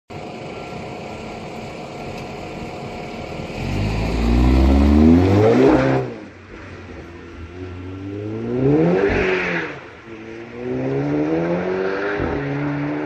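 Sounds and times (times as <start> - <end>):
car engine accelerating: 1.3 - 13.0.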